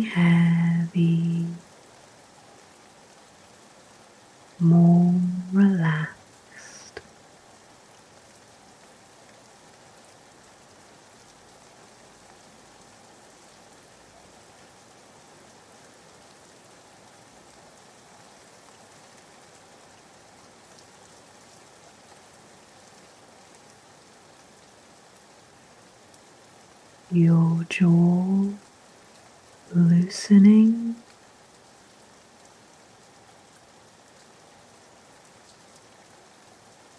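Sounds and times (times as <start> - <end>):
rain hissing: 0.0 - 7.5, 25.5 - 36.9
rain drops ticking: 0.0 - 36.9.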